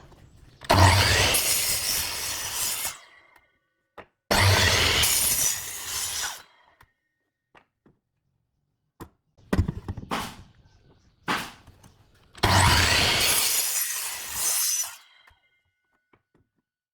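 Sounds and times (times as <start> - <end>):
power tool cutting wood: 0.0 - 3.2, 4.3 - 6.5, 12.2 - 15.4.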